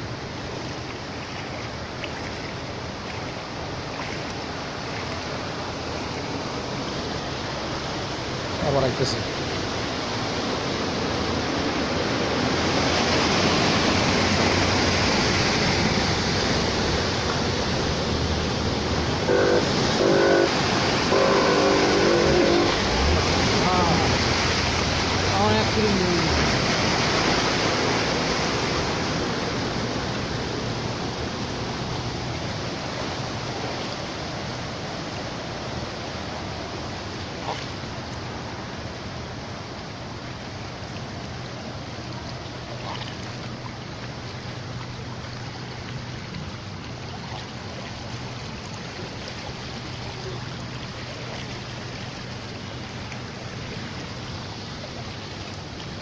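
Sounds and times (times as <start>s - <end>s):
rushing floodwater: 0.0s - 56.0s
heavy rain: 4.9s - 33.8s.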